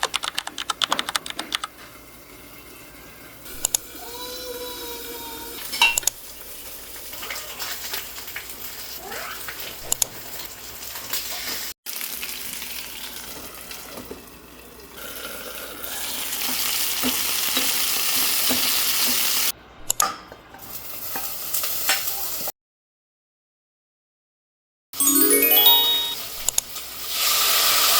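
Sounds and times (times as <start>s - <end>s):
chicken sizzling in a pan: 1.8s - 19.5s, 20.6s - 22.5s, 26.7s - 27.9s.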